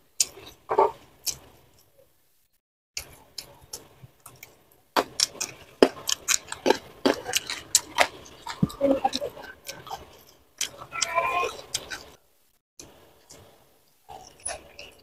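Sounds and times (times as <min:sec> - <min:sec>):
crunchy chewing of berries: 0:03.0 - 0:12.2.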